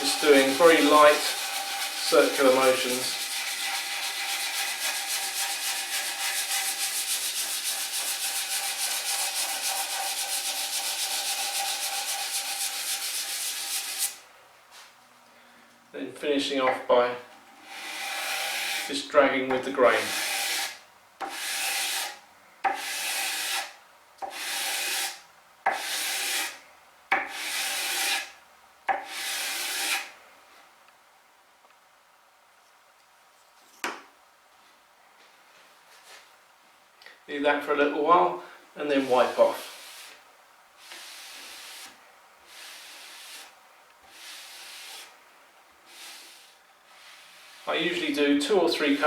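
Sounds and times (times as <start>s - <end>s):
sanding block tapping wood: 0.0s - 14.2s, 19.5s - 28.3s, 28.9s - 30.0s
sandpaper strokes on wood: 0.0s - 14.2s, 19.9s - 23.7s, 24.3s - 26.6s, 27.3s - 28.3s, 29.0s - 30.1s, 39.0s - 40.2s, 40.8s - 45.2s, 45.9s - 48.1s.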